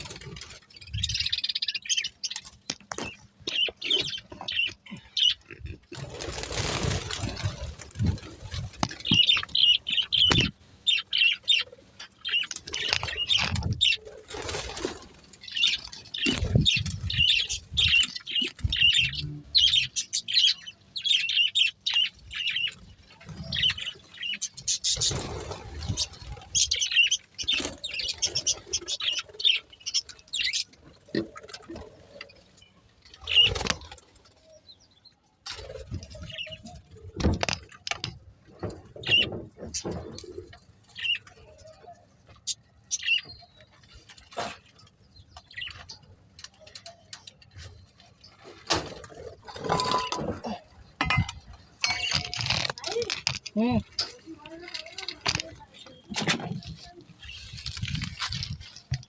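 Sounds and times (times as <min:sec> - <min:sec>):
budgerigars chirping and warbling: 0:00.0 - 0:32.5, 0:39.0 - 0:48.5
wing flapping: 0:06.0 - 0:10.4.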